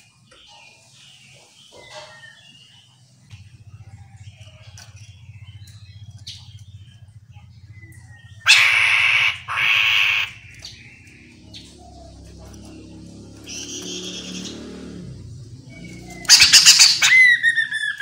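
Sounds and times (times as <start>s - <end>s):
faint bird chirps: 0.0s - 18.0s
harsh rasping bird calls: 0.0s - 18.0s
low pulsing hum: 3.1s - 16.4s.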